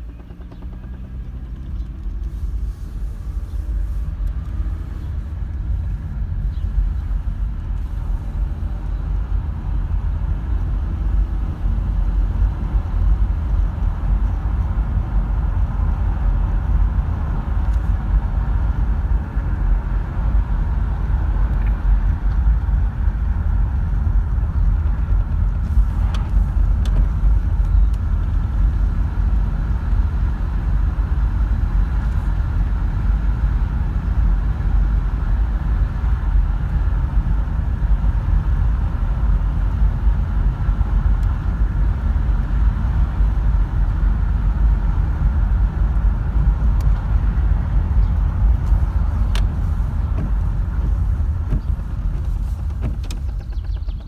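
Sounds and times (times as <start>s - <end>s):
engine knocking: 0.0s - 2.3s, 50.2s - 54.0s
car engine idling: 0.0s - 54.0s.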